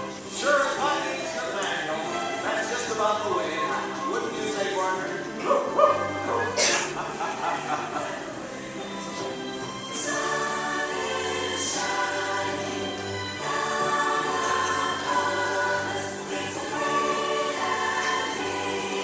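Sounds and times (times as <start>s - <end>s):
choir singing: 5.6s - 19.0s.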